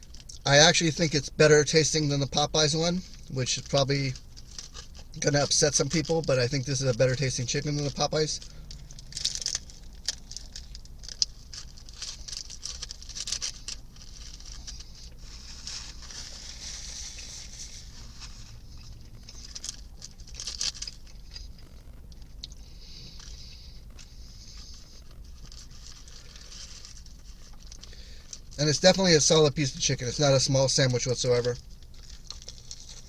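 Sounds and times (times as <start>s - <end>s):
low hum: 6.0s - 28.6s
person chewing crunchy food: 7.9s - 28.6s, 31.6s - 33.0s
soft rustling: 8.4s - 28.4s.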